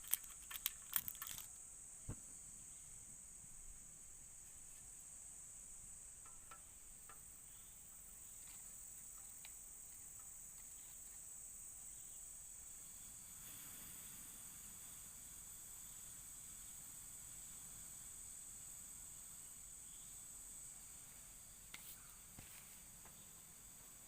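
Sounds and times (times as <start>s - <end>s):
insects droning high-pitched: 0.0s - 24.0s
faint clicks: 7.9s - 11.3s.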